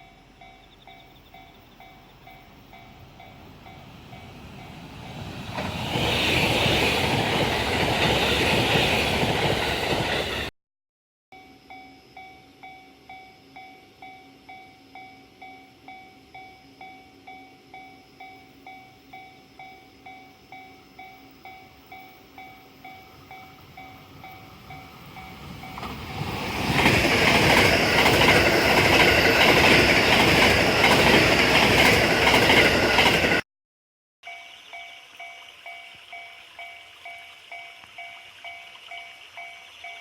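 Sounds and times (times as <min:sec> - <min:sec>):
train passing: 0:00.0 - 0:10.5, 0:13.1 - 0:33.4.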